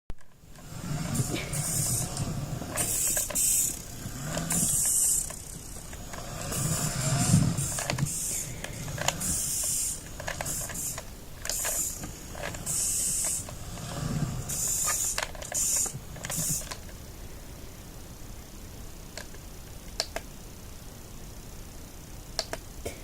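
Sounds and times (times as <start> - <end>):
short hissing bursts: 0.6 - 17.4
toy truck switch clicks: 22.4 - 22.6.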